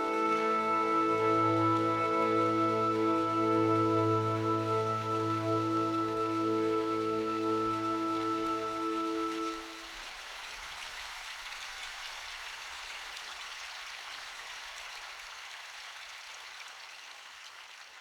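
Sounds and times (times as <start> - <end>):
musical drone: 0.0 - 9.8
rain falling in forest: 0.0 - 18.0.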